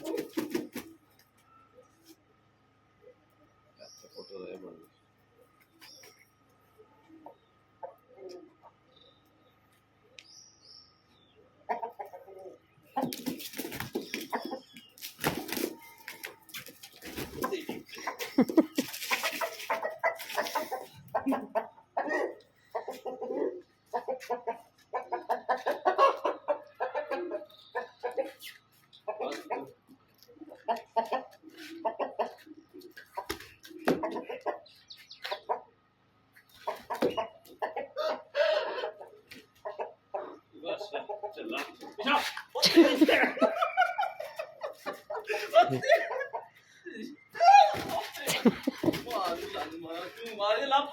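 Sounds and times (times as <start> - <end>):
wings flapping and scuffling: 0.0 - 1.4, 13.0 - 21.3, 28.2 - 35.4, 36.3 - 37.7, 47.5 - 50.4
chickens clucking: 0.0 - 10.2, 11.0 - 50.7.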